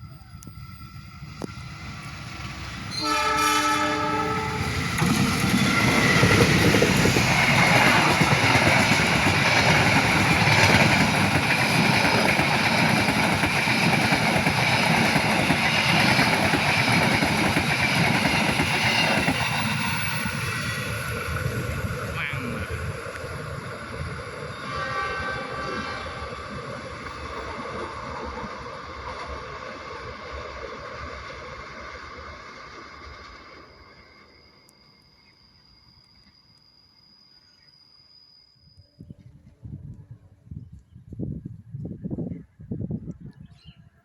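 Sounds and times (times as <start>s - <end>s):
train wheel and rail rush: 0.0s - 43.2s
train horn blast: 2.9s - 4.8s, 24.6s - 26.4s.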